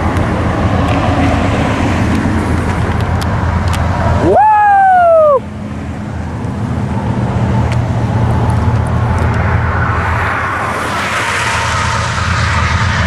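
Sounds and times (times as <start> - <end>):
locomotive engines rumbling: 0.0 - 13.0
wheel and rail noise: 0.0 - 13.0.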